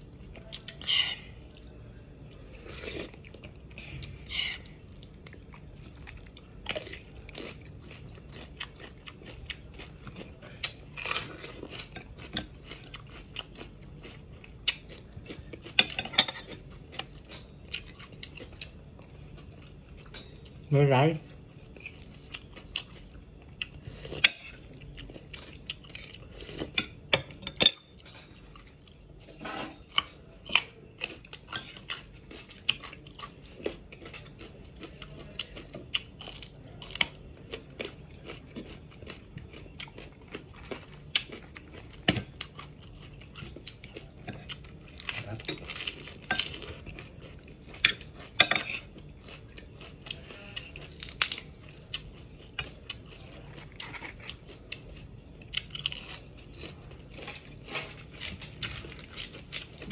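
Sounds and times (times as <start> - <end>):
crunching raw vegetables: 29.8 - 59.9.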